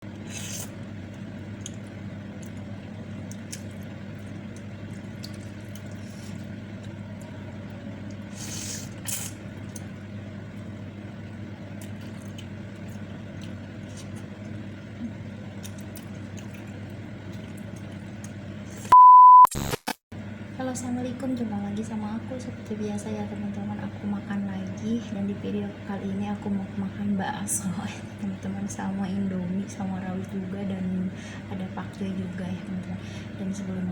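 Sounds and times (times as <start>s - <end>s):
steady low hum: 0.0s - 19.0s, 19.6s - 33.9s
wet eating and slurping: 0.2s - 0.8s, 3.3s - 6.6s, 8.2s - 9.8s
electronic beep: 18.9s - 19.8s.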